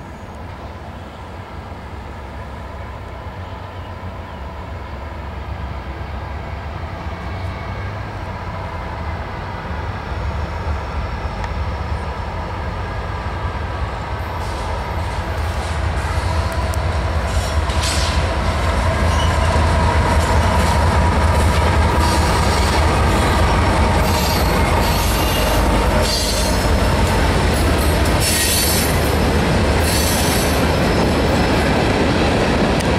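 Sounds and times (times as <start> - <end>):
diesel locomotives rumbling: 0.0 - 32.9
train cars rolling past: 0.0 - 32.9
high-pitched wheel squeal: 24.0 - 26.6.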